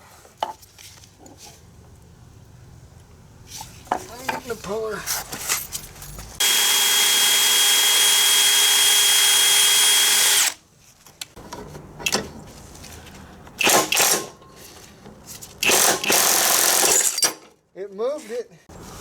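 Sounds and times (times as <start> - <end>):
handling sounds: 3.5 - 6.4
power tool whining: 6.4 - 10.6.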